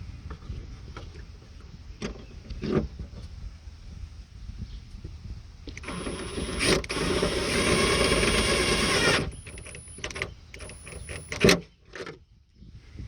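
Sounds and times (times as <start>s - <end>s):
cordless driver motor whine: 5.7s - 11.5s.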